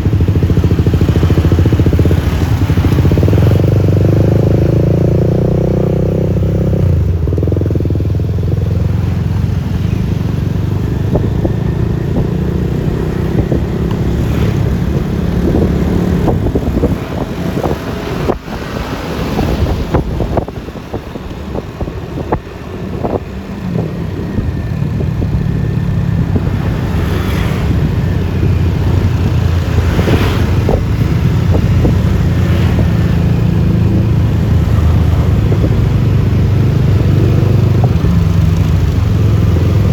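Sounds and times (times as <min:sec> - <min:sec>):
road and wind noise: 0:00.0 - 0:39.9
scooter engine running: 0:00.0 - 0:39.9.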